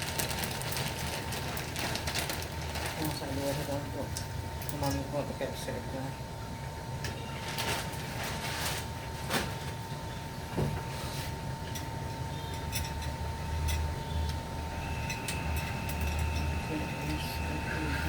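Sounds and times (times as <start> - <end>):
low hum: 11.7 - 18.0
faint whine: 12.1 - 18.0.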